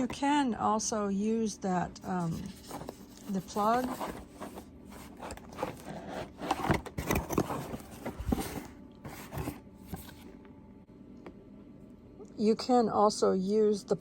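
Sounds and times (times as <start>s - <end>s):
scraping and rubbing: 2.0s - 10.2s
hands handling packaging: 2.1s - 10.3s.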